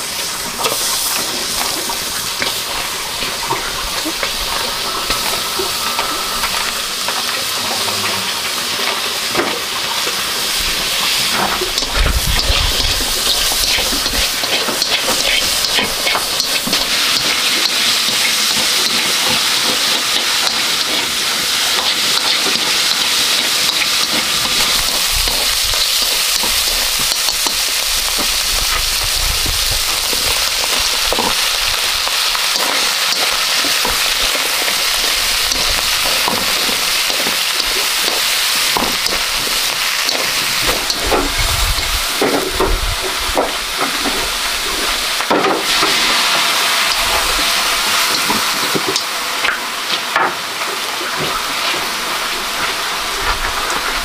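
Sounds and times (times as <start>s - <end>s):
pork sizzling in a wok: 0.0s - 54.0s
chopsticks tapping a pan: 11.7s - 28.4s, 30.0s - 41.3s.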